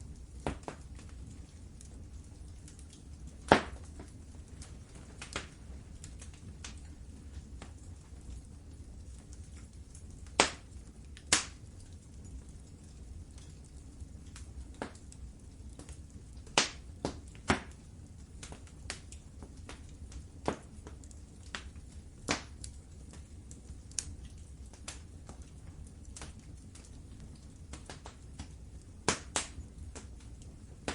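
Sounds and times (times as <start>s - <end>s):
loud fire pops: 0.0s - 30.9s
rumble of flames: 0.0s - 30.9s
wood fire crackling: 0.0s - 30.9s.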